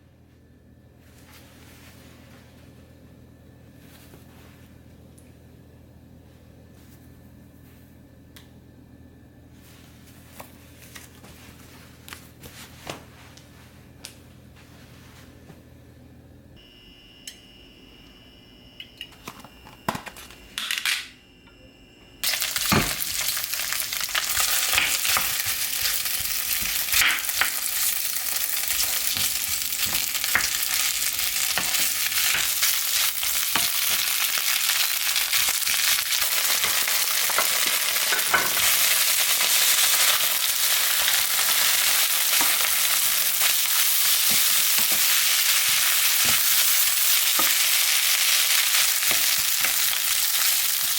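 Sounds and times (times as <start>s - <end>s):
food sizzling in pan: 22.2s - 50.9s.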